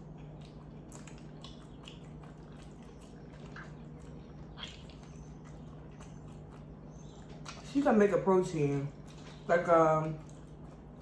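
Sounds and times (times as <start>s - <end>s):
wet mouth clicks and smacks: 0.0s - 7.7s.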